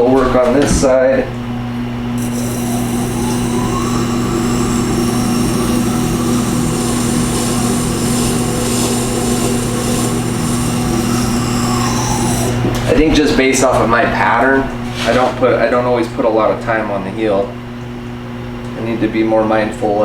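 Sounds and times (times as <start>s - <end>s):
sharpener motor hum: 2.2s - 12.8s
steel grinding on stone: 2.2s - 12.8s.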